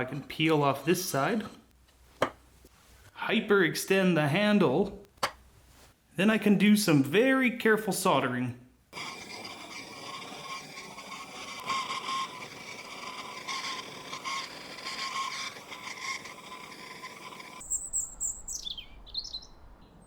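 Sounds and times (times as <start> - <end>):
small birds chirping and whistling: 17.6 - 20.0.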